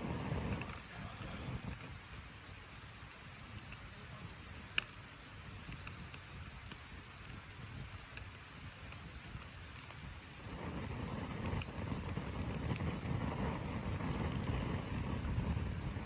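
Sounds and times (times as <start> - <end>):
wood fire crackling: 0.0 - 16.0
sharp pop from fire: 5.6 - 16.0.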